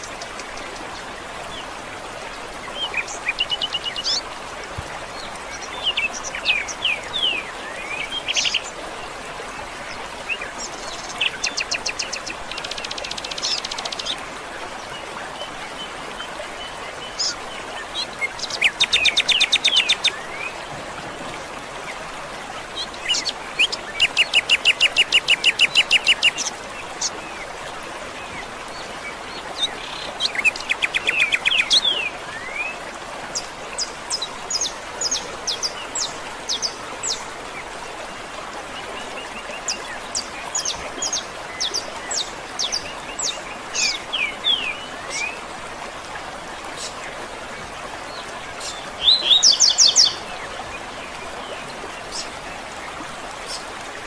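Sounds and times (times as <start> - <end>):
running water: 0.0 - 54.0
songbirds singing: 5.1 - 21.4, 22.6 - 45.6, 46.5 - 53.8.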